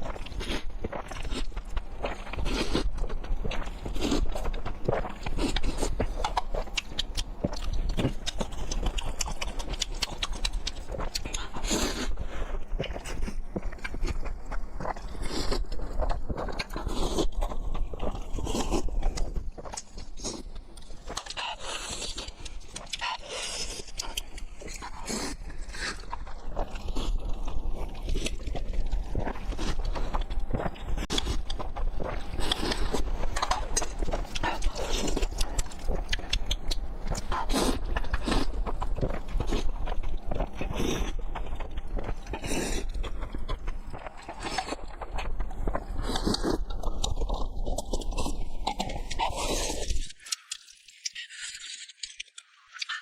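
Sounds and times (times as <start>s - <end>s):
chewing with wet smacks: 0.0s - 53.0s
noodles being slurped: 21.1s - 52.9s.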